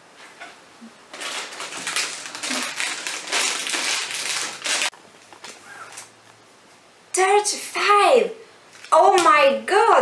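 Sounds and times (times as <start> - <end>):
plastic snack packet crinkling: 1.1 - 6.1, 8.7 - 9.0.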